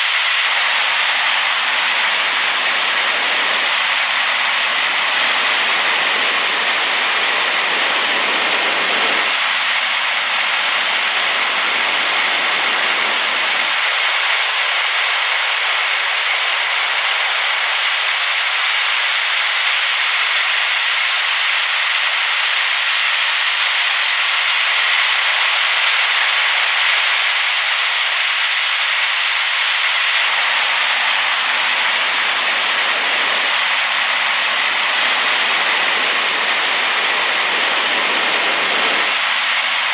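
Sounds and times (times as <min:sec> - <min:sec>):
waterfall rushing: 0:00.0 - 0:18.4, 0:30.1 - 0:39.9.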